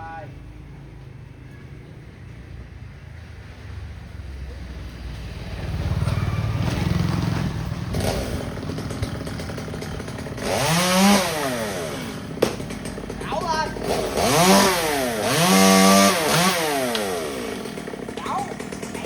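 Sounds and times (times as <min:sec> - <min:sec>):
traffic rumbling past: 0:00.0 - 0:19.0
chainsaw revving: 0:05.6 - 0:19.0.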